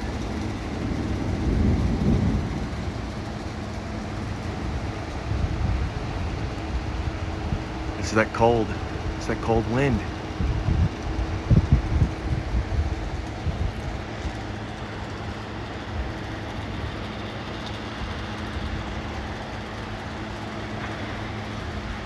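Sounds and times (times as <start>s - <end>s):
storm wind buffeting microphone: 0.0s - 9.2s, 10.0s - 17.2s
faint steady hum: 5.3s - 12.9s.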